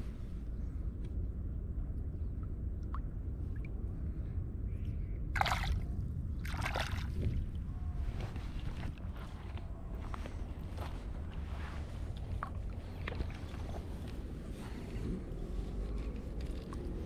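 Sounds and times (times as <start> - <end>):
steady low rumble: 0.0 - 17.0
water splashes: 5.4 - 7.3.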